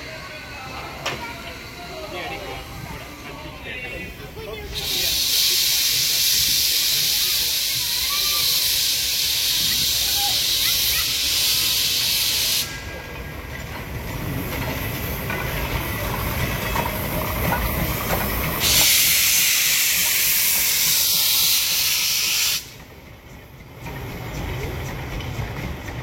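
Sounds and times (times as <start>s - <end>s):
train rumbling: 0.0s - 26.0s
loud hiss: 4.7s - 13.0s, 17.1s - 22.8s.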